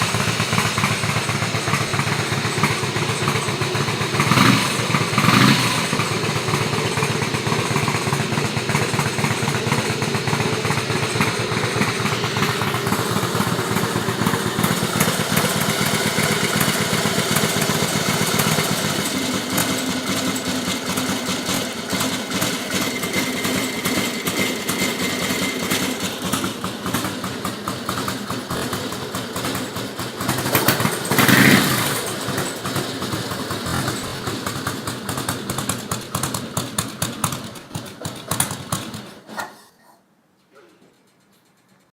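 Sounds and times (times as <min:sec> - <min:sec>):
motorcycle engine running: 0:00.0 - 0:39.2.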